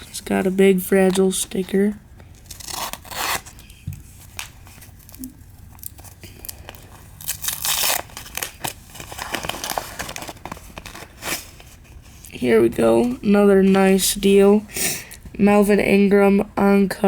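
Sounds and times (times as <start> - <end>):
packaging tearing and crinkling: 2.4 - 11.8.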